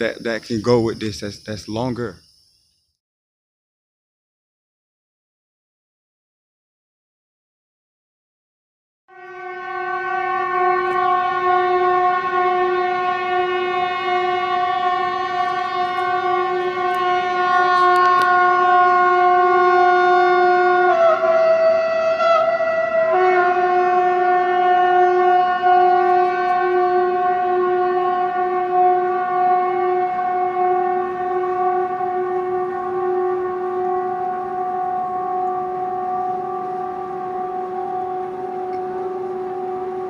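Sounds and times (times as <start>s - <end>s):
brassy horn-like drone: 9.1s - 40.0s.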